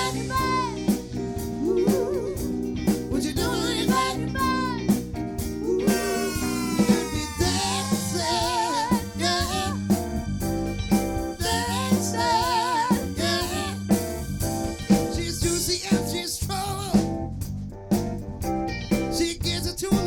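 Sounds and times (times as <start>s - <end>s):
lead melody with wide vibrato: 0.0s - 15.8s
guitar chords: 0.0s - 16.3s
bass: 0.0s - 20.0s
drum kit: 0.0s - 20.0s.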